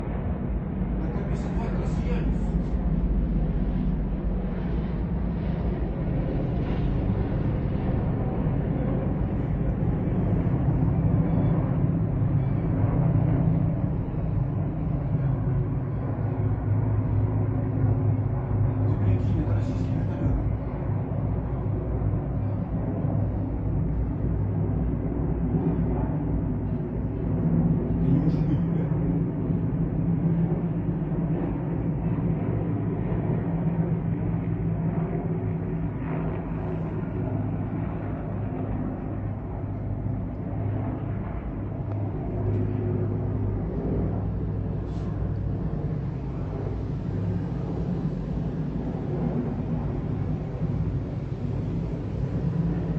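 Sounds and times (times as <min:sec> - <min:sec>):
helicopters rumbling in flight: 0:00.0 - 0:52.9.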